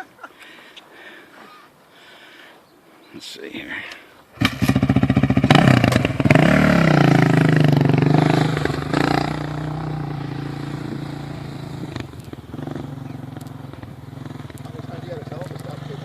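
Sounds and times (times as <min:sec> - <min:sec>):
atv engine revving: 0:04.3 - 0:16.0.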